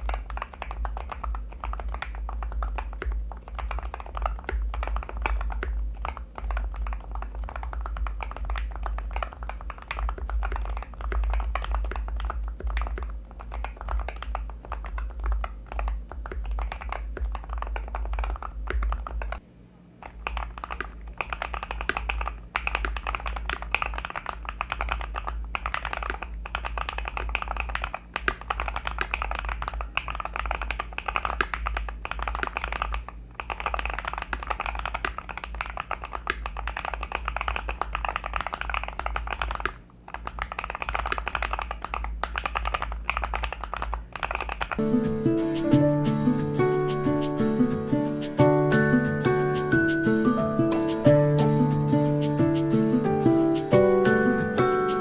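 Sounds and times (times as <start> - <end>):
fast keyboard typing: 0.0 - 19.4, 20.0 - 55.0.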